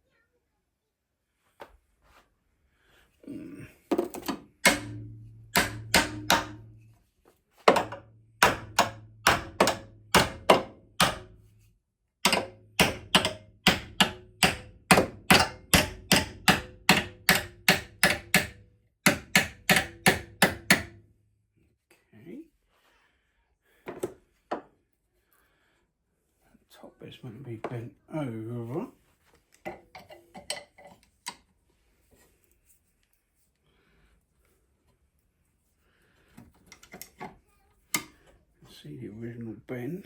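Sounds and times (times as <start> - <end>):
hammer blows on metal: 4.6 - 6.9.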